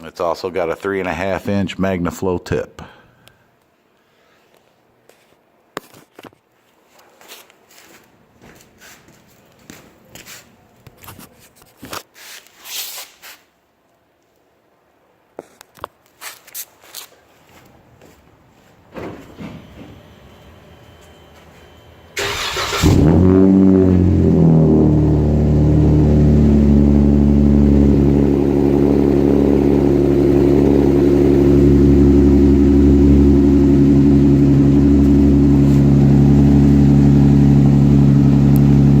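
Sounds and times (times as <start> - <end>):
engine cranking: 22.2 - 23.3
engine revving then idling: 22.2 - 39.0.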